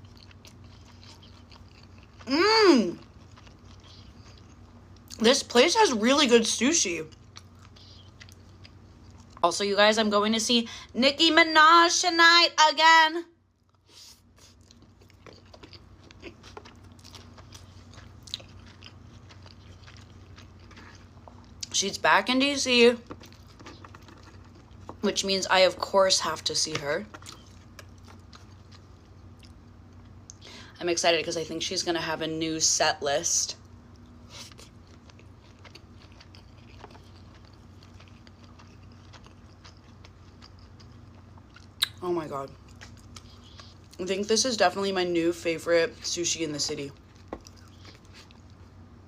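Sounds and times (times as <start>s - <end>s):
person chewing food: 0.0s - 5.2s, 7.1s - 9.4s, 13.5s - 21.7s, 23.0s - 25.0s, 27.1s - 30.4s, 33.7s - 44.0s, 47.0s - 48.8s
steady low hum: 0.0s - 49.0s.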